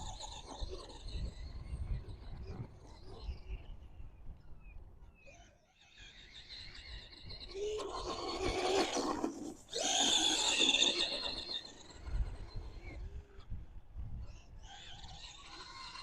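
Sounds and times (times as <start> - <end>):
toy truck electric motor whining: 7.6 - 11.7.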